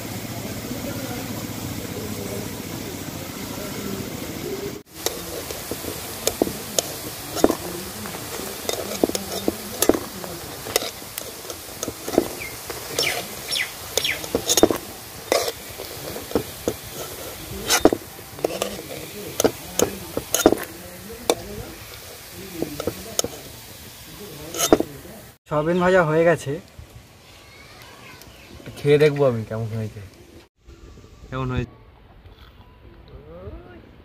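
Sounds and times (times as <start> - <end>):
food deep-frying in oil: 0.0 - 30.1
metal spatula scraping pan: 4.9 - 25.0.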